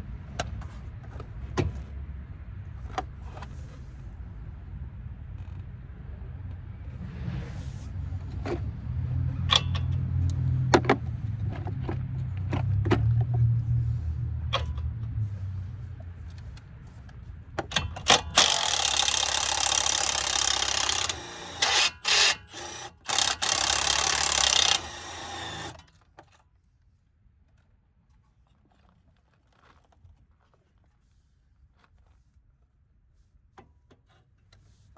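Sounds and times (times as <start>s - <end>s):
low rumble: 6.5s - 9.1s
wrenches clinking on metal: 17.7s - 25.8s.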